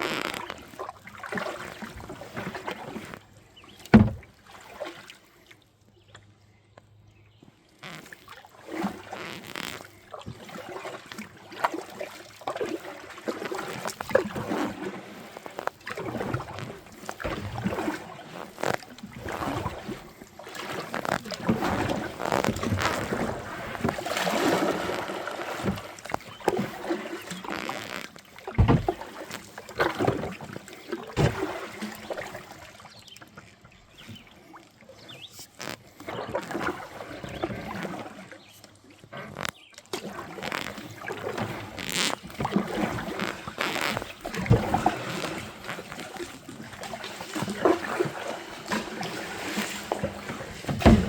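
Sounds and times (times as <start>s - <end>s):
water splashing and swishing: 0.0s - 51.0s
knocks on kayak: 3.9s - 4.2s, 50.6s - 51.0s.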